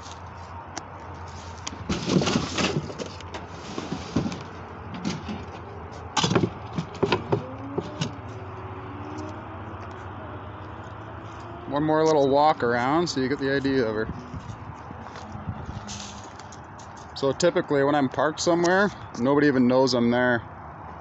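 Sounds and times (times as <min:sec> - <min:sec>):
rustling and scraping: 0:00.0 - 0:08.5, 0:13.6 - 0:17.2.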